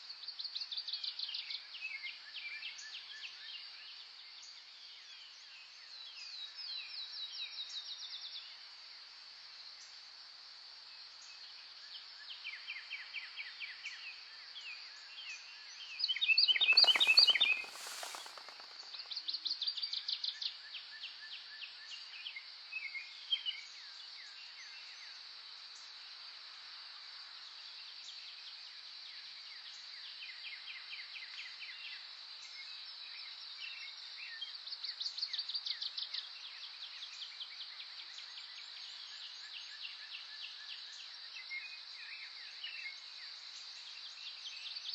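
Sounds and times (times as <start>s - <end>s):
wild birds singing: 16.4s - 19.1s.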